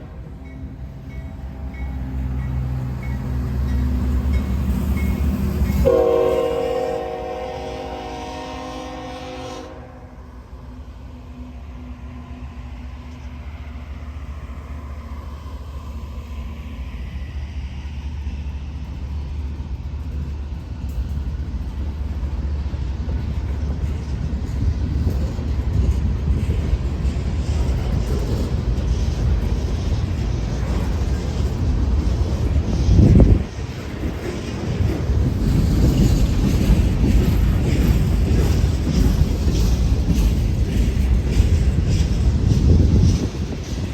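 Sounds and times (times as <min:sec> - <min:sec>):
freight train rumbling: 0:00.0 - 0:43.9
locomotive horn: 0:05.8 - 0:10.4.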